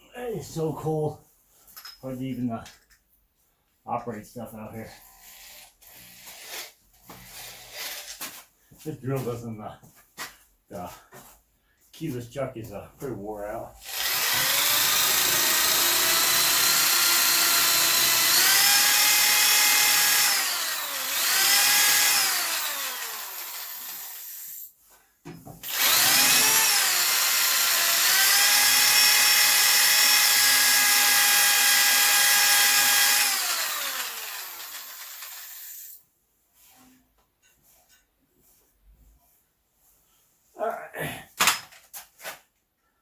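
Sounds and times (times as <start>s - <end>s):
electric drill with wire brush: 5.2s - 8.2s, 13.8s - 24.7s, 25.6s - 36.0s.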